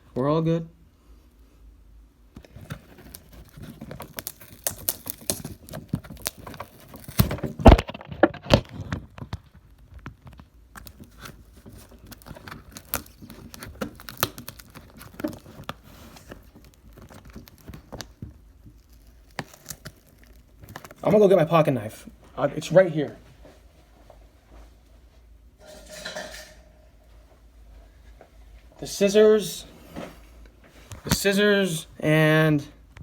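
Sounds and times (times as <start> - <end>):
packaging rustling and crinkling: 2.4 - 22.6.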